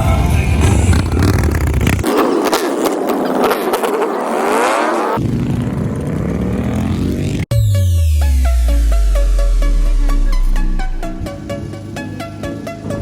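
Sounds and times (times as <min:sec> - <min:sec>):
electronic music: 0:07.5 - 0:13.0
heavy bass-led beat: 0:07.5 - 0:13.0
rising sweeping effects: 0:07.5 - 0:13.0.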